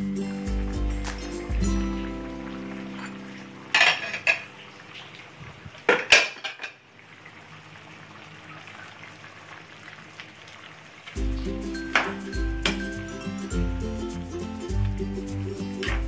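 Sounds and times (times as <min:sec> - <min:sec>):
utensil clattering against pan: 0:03.0 - 0:04.5.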